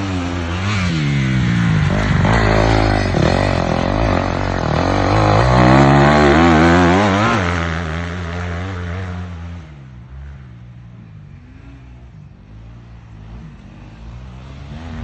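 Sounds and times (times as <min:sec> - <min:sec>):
dirt bike engine revving: 0:00.0 - 0:09.8.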